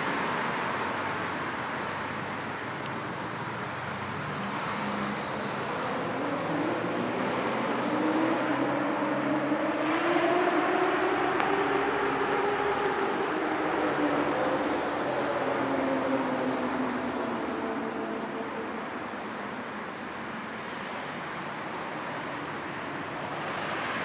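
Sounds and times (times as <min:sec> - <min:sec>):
road traffic rush: 0:00.0 - 0:24.0
vehicle accelerating: 0:03.9 - 0:19.2.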